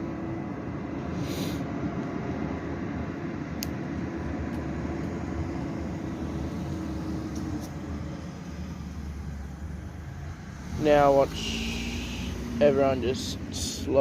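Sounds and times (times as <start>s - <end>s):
steady hum: 0.0s - 14.0s
truck engine rumble: 0.0s - 14.0s
short hiss: 1.2s - 1.6s.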